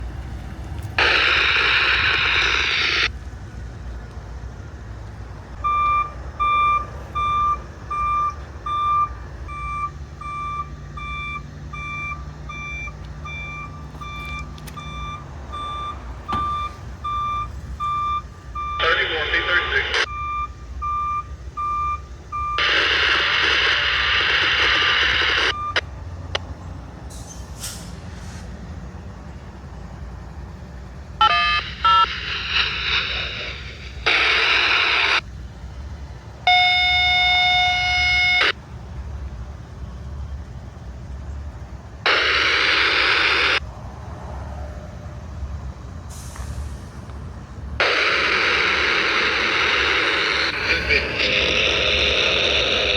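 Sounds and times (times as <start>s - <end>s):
truck idling: 0.0s - 52.9s
reversing beeps: 5.6s - 23.8s, 25.0s - 25.8s, 31.2s - 33.2s, 36.5s - 38.6s.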